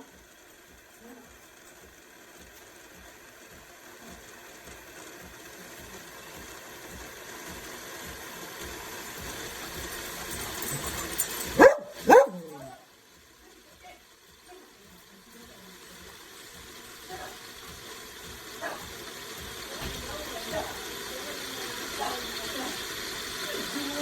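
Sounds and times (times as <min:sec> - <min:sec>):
steady hiss: 0:00.0 - 0:24.0
dog barking: 0:11.5 - 0:12.8, 0:18.6 - 0:18.9.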